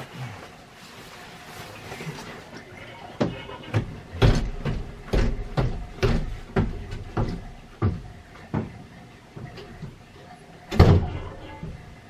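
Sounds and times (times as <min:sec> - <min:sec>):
heavy knocks and thumps: 0:03.2 - 0:10.0, 0:10.7 - 0:11.9.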